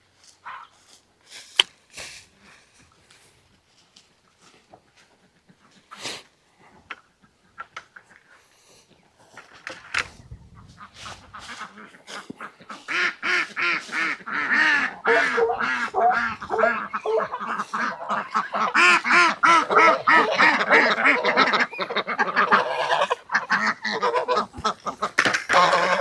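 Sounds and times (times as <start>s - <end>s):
poultry calling excitedly: 9.4s - 26.0s.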